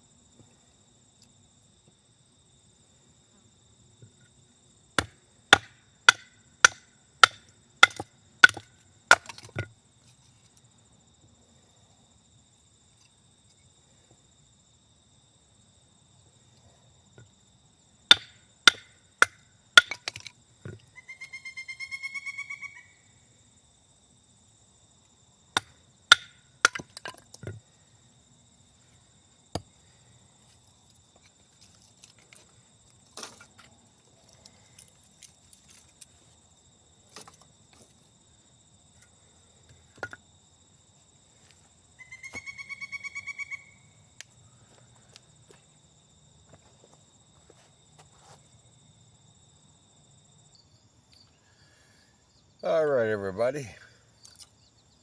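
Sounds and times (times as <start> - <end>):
hatchet chopping firewood: 5.0 - 9.8, 18.1 - 20.8, 25.6 - 27.6, 29.5 - 29.8, 33.2 - 33.8, 37.1 - 37.5, 40.0 - 40.2
rapid trilling call: 21.0 - 23.0, 42.0 - 43.9.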